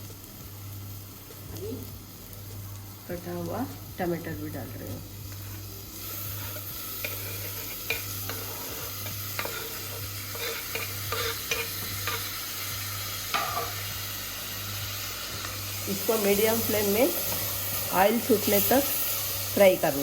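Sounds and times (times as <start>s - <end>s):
masala sizzling in hot oil: 0.0s - 20.0s
spoon scraping pot: 5.4s - 12.3s.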